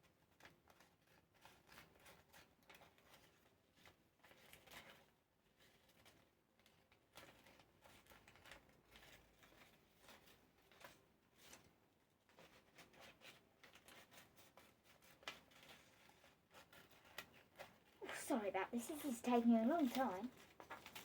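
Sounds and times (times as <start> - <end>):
scissors cutting paper: 13.3 - 21.0.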